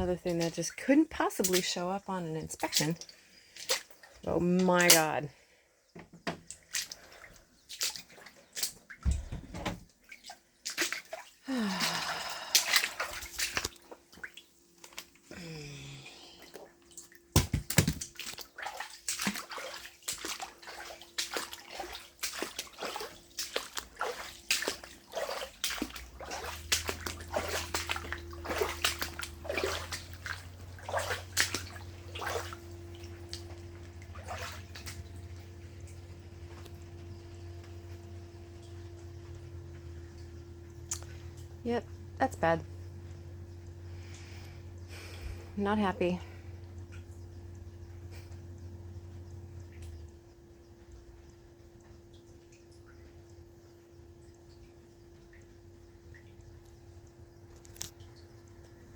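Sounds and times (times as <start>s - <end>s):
footsteps sloshing through water: 0.0s - 5.2s, 6.3s - 9.3s, 9.9s - 15.6s, 16.4s - 41.6s
steady low hum: 10.6s - 58.9s.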